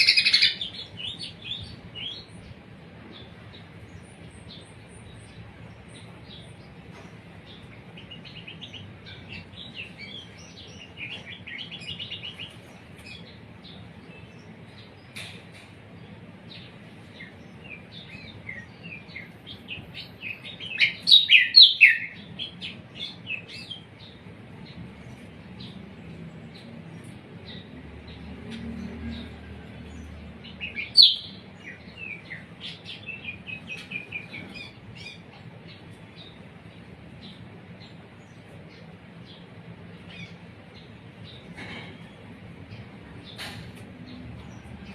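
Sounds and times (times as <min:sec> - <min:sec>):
songbird twittering: 0:00.0 - 0:02.5, 0:16.5 - 0:39.4.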